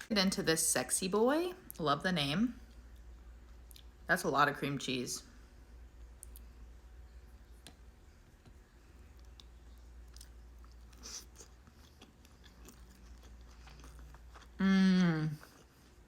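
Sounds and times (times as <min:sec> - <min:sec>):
steady low hum: 0:00.0 - 0:16.0
faint chewing: 0:02.6 - 0:04.0, 0:07.4 - 0:16.0
soft mouth clicks: 0:06.2 - 0:06.5.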